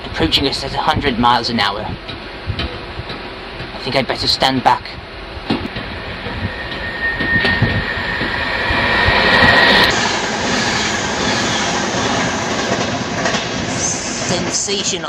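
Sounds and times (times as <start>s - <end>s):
high whine: 0.0s - 14.8s
electric train passing at speed: 5.0s - 15.0s.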